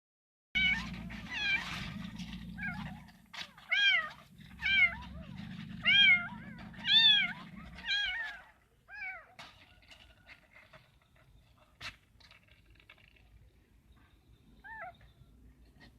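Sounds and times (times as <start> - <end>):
kitten meowing: 3.7 - 9.3.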